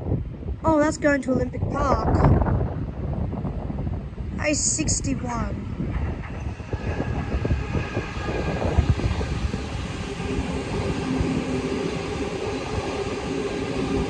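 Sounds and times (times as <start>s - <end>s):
steady motor tone: 5.6s - 14.0s
train wheels clattering on rails: 5.7s - 14.0s.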